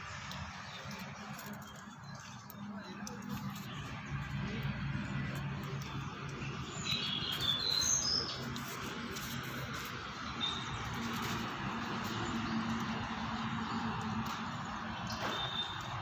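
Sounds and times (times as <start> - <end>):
bird chirping: 5.8 - 9.0, 10.3 - 10.9.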